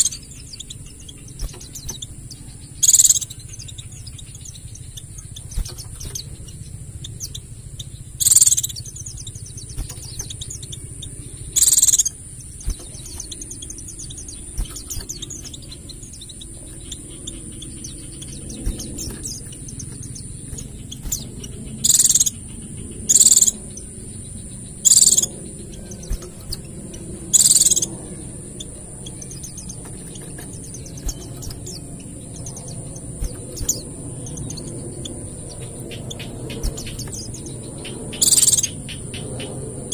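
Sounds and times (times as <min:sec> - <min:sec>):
bird twittering chatter: 0:00.0 - 0:39.9
high-pitched whine: 0:00.0 - 0:39.9
high-pitched bird shots: 0:02.8 - 0:03.8, 0:08.2 - 0:23.8, 0:24.8 - 0:39.6.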